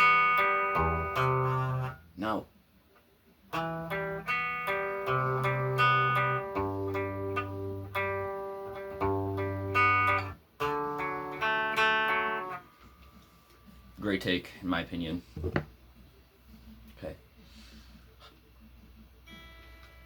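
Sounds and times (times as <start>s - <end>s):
guitar chords ringing: 0.0s - 2.1s, 3.5s - 12.8s, 19.3s - 20.0s.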